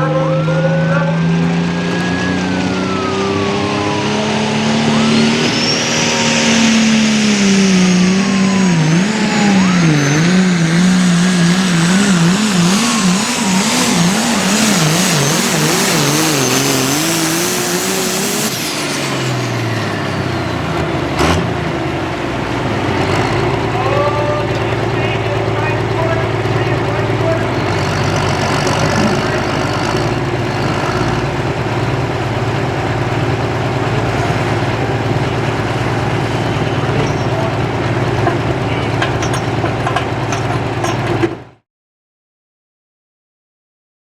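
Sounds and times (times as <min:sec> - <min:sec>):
diesel tractor engine roaring: 0:00.0 - 0:41.6
high turbo whistle: 0:01.6 - 0:20.8.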